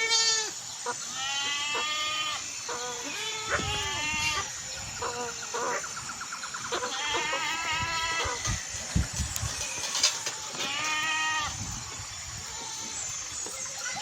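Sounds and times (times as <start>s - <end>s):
goat bleating: 0.0s - 2.4s, 3.0s - 4.5s, 6.7s - 8.5s, 10.4s - 11.6s.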